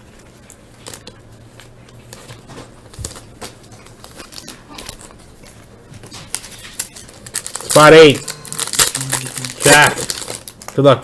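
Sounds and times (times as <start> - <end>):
faint steady hum: 0.0 - 11.0
wrappers crinkling and rustling: 0.0 - 11.0.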